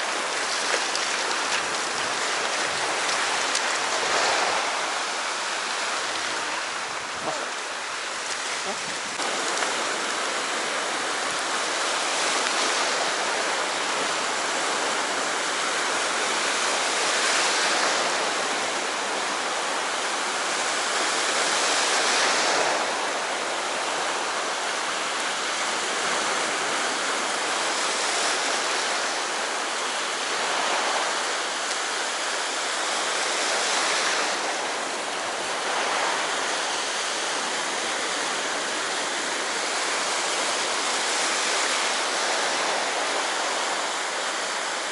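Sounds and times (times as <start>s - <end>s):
sea surf washing on shore: 0.0s - 44.9s.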